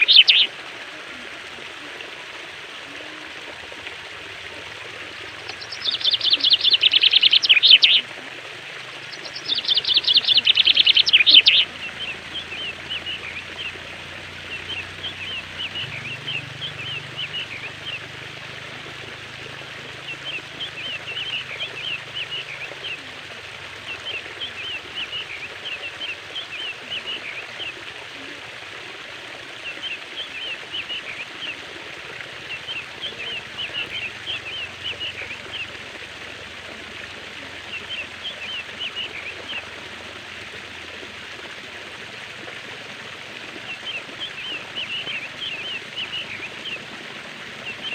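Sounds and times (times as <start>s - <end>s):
birds singing: 0.0s - 0.5s, 4.3s - 28.4s, 29.5s - 39.8s, 43.6s - 47.9s
rapid bird trills: 0.0s - 0.5s, 5.0s - 8.1s, 9.0s - 18.2s, 32.3s - 35.8s
flowing water: 0.0s - 47.9s.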